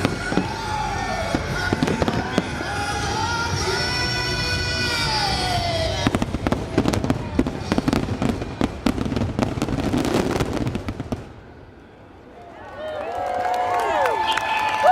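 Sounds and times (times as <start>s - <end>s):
firework bursts: 0.0s - 11.7s.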